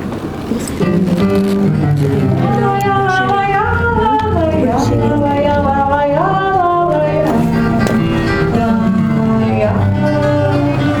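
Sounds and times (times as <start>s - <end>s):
acoustic guitar playing: 0.0s - 11.0s
woman singing: 2.3s - 11.0s.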